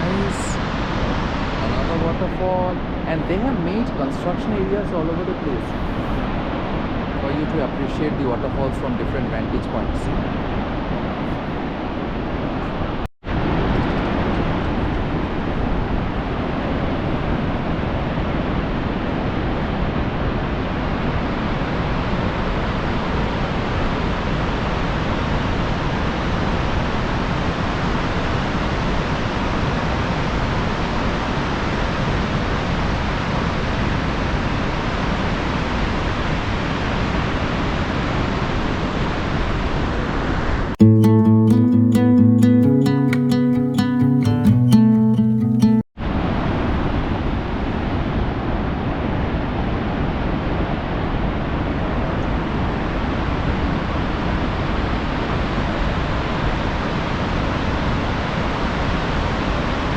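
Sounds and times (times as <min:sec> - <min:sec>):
waterfall rushing: 0:00.0 - 0:05.4.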